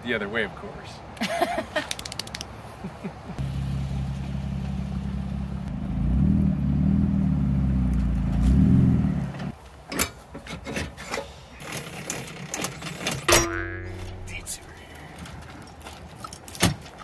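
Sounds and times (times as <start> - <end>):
vehicle engine running: 3.4 - 9.5.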